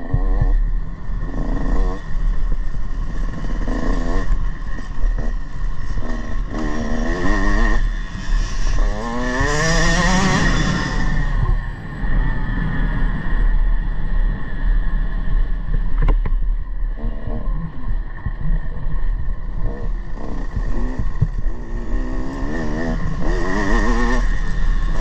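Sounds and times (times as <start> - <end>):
motorcycle engine revving: 0.0 - 11.8, 16.9 - 25.0.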